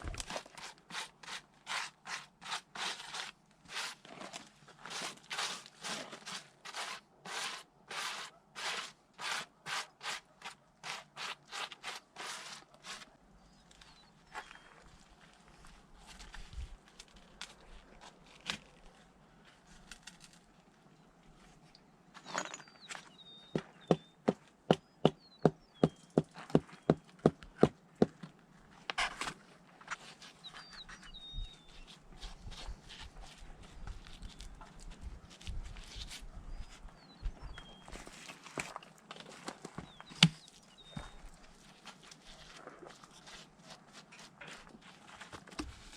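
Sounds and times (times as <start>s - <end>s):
faint bird chirps: 30.4s - 32.5s, 36.0s - 38.0s.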